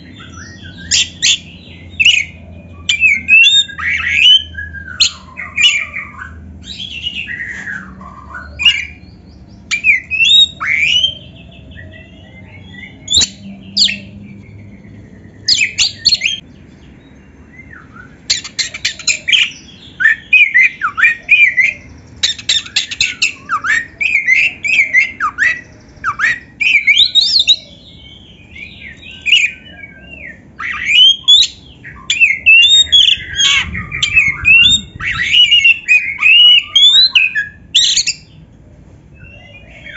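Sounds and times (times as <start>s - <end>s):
bird singing varied whistles: 17.6s - 27.7s, 28.6s - 38.3s.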